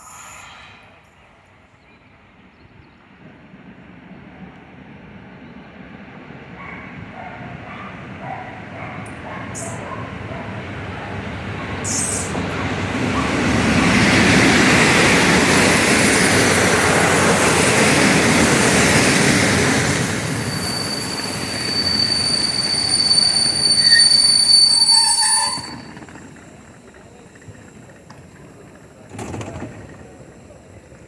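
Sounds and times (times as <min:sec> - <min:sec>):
train wheels rumbling on rails: 0:00.0 - 0:31.0
high brake squeal: 0:11.8 - 0:12.4, 0:19.0 - 0:28.6.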